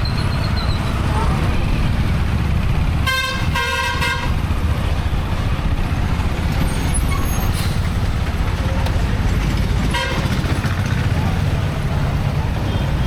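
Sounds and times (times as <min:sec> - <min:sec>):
wind and road rumble: 0:00.0 - 0:13.0
vehicle horn honking: 0:03.0 - 0:04.4, 0:09.9 - 0:10.3.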